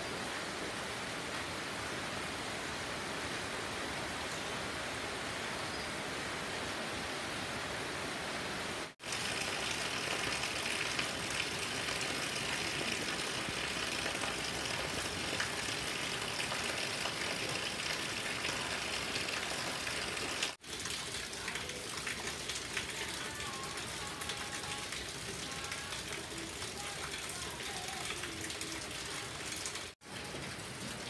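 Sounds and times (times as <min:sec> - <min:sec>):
heavy rain: 0:00.0 - 0:31.0
rainwater gushing off roof: 0:08.8 - 0:31.0.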